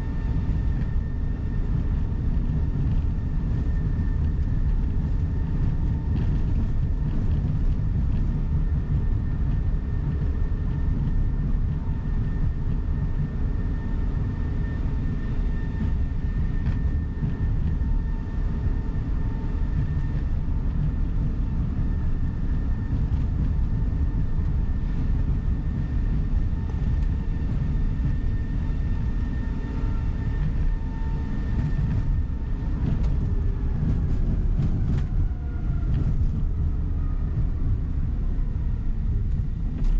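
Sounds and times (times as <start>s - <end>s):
coach engine and road rumble: 0.0s - 39.9s.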